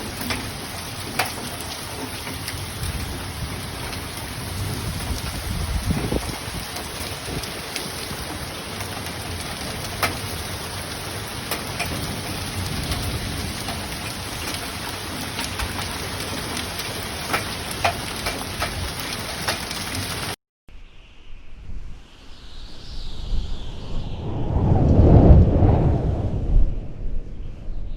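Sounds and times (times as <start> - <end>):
heavy rain on hard surfaces: 0.0 - 20.4.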